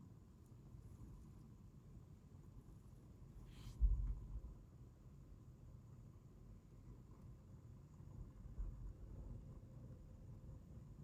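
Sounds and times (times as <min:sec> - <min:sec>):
soft hiss: 0:00.5 - 0:04.6.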